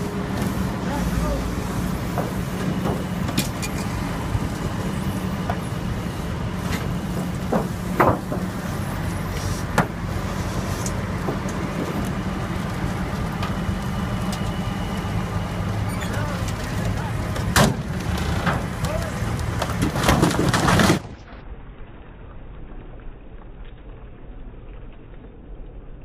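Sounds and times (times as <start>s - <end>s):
heavy truck engine running: 0.0s - 21.2s.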